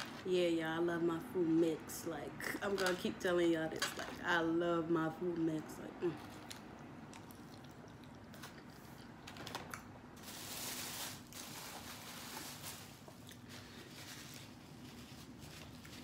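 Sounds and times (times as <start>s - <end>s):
chewing with wet mouth clicks: 6.4s - 9.2s.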